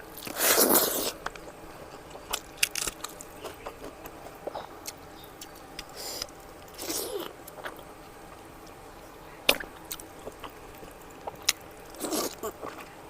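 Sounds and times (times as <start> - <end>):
person chewing and mouth sounds: 0.1 - 7.9, 9.5 - 13.0
breathy hisses: 5.9 - 7.2.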